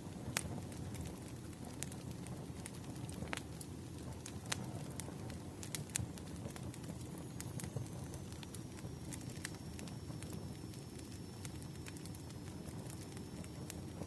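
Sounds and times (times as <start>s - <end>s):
logs crackling and popping: 0.0s - 14.0s
low rumble of flames: 0.0s - 14.0s.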